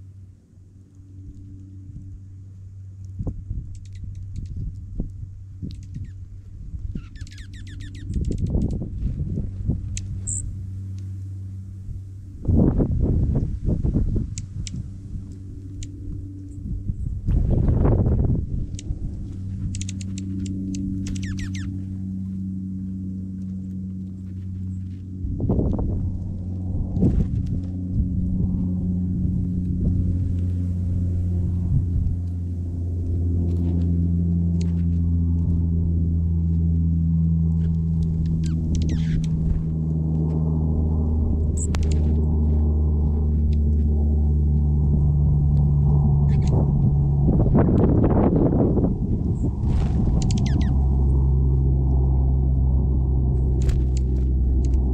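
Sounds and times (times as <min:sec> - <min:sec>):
songbird chip notes: 0:00.0 - 0:08.8, 0:09.9 - 0:26.5, 0:36.5 - 0:42.3, 0:49.2 - 0:54.9
low rumble: 0:00.0 - 0:54.9
steady low hum: 0:00.0 - 0:54.9
bird chip calls and twittering: 0:05.6 - 0:06.2, 0:06.9 - 0:08.7, 0:10.0 - 0:10.5, 0:19.7 - 0:21.9, 0:37.6 - 0:39.5, 0:50.2 - 0:50.8
rough rustling noise: 0:37.6 - 0:54.9.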